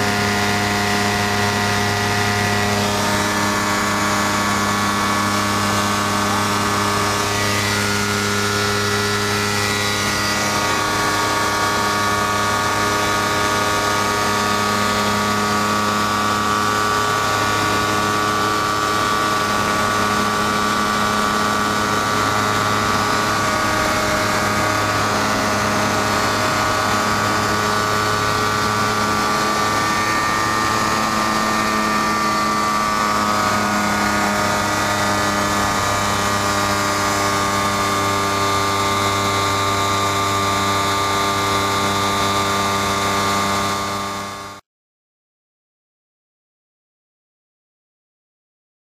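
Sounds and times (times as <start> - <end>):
light aircraft engine and propeller: 0.0 - 44.6.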